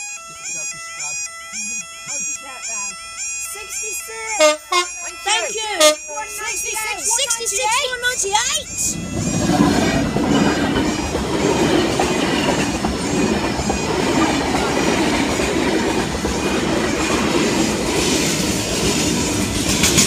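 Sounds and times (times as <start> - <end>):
high repeating chirp: 0.0 - 18.1
freight train rumbling past: 4.1 - 5.2, 5.8 - 20.0
wheels clattering over rail joints: 8.0 - 20.0.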